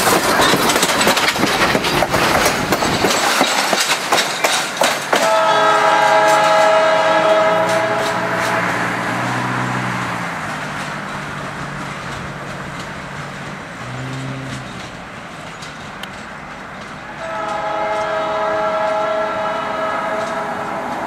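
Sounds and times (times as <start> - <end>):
train rolling on rails: 0.0 - 21.0
train air horn chord: 5.2 - 9.0, 17.2 - 21.0.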